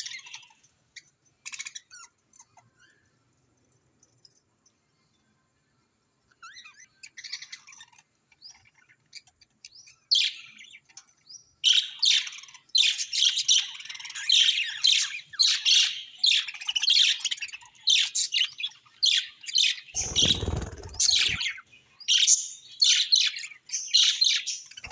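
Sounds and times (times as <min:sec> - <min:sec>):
parrots chirping and squawking: 0:20.0 - 0:21.6.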